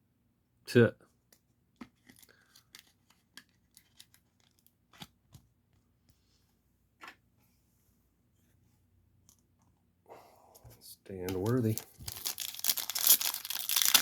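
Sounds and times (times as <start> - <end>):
trading cards and sleeves rustling: 10.5 - 14.0.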